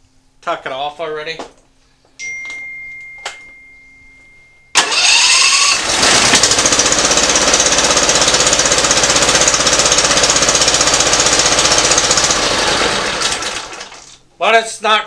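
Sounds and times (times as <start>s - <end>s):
engine starting and running unevenly: 4.8s - 14.2s.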